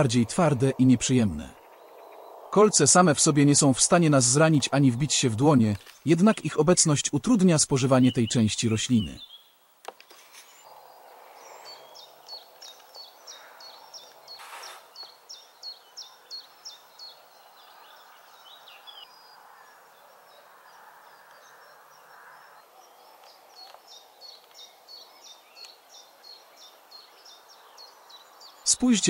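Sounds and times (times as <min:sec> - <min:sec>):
songbird calling: 0:00.0 - 0:09.7, 0:10.4 - 0:29.0
outdoor background hiss: 0:00.0 - 0:29.0.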